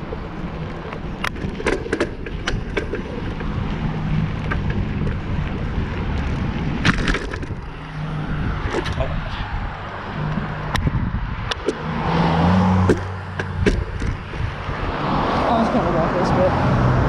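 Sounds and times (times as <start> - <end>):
road rumble: 0.0 - 17.0
wind buffeting microphone: 0.0 - 17.0
sharp clicks or rattles: 1.2 - 3.5, 6.8 - 7.7.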